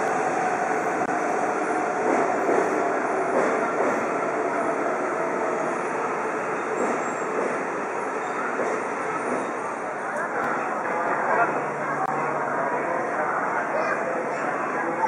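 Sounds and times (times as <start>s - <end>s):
train wheels rushing: 0.0s - 9.8s.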